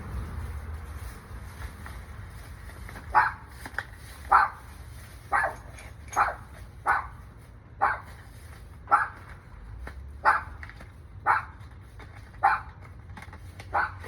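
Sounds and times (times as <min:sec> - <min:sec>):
dog barking: 0:03.1 - 0:03.4, 0:04.3 - 0:04.6, 0:05.3 - 0:07.2, 0:07.8 - 0:08.1, 0:08.9 - 0:09.2, 0:10.2 - 0:10.6, 0:11.2 - 0:11.6, 0:12.4 - 0:12.8, 0:13.7 - 0:14.0.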